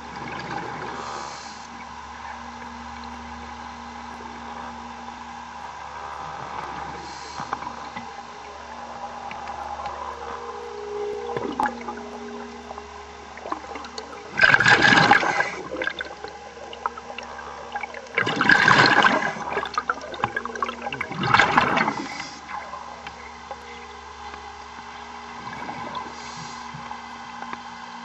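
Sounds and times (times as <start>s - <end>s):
low machinery hum: 0.0s - 28.0s
underwater exhaust bubbles: 0.0s - 28.0s.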